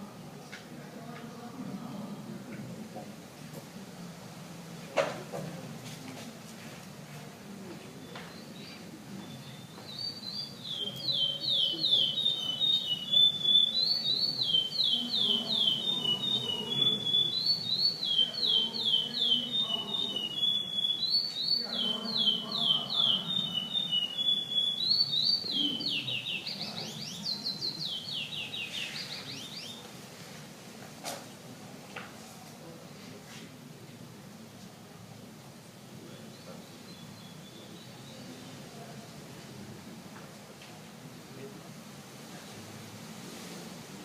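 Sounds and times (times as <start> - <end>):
finch singing whistled notes: 8.0 - 29.8.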